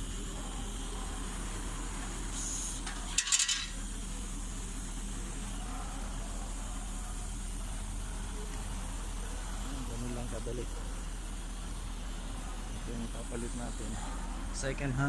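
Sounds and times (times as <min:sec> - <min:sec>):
low background hum: 0:00.0 - 0:15.0
metal tools clinking: 0:02.9 - 0:03.8.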